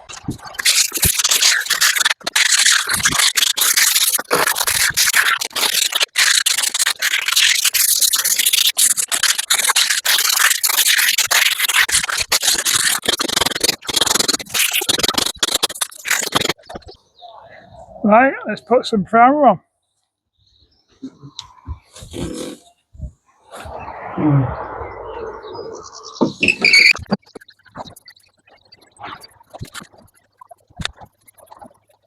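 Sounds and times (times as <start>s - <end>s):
sandpaper scratching on deck: 0.2s - 16.7s.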